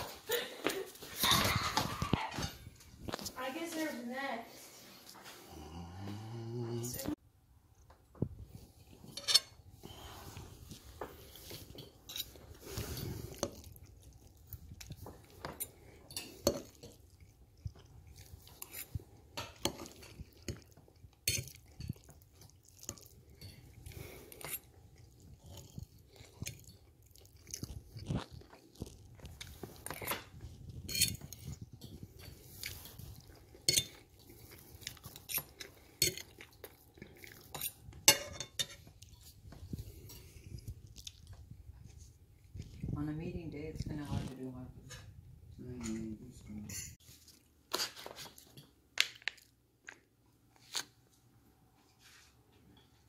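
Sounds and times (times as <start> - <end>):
chewing and crunching food: 6.9 - 45.2, 47.0 - 51.3.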